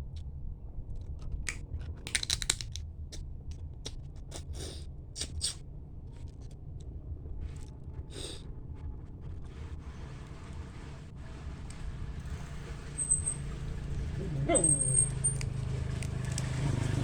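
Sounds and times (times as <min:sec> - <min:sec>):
crab shell cracking: 0:01.4 - 0:02.8, 0:15.4 - 0:16.6.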